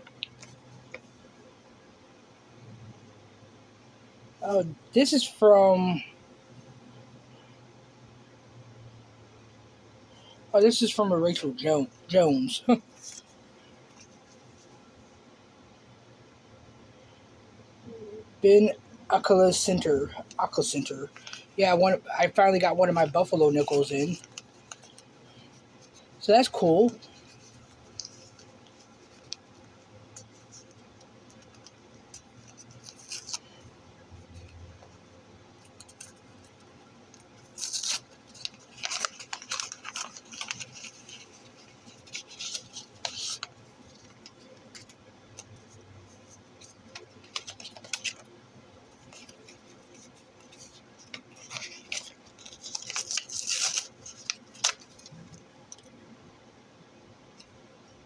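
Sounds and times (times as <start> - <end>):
packaging rustling and scraping: 30.2 - 55.9.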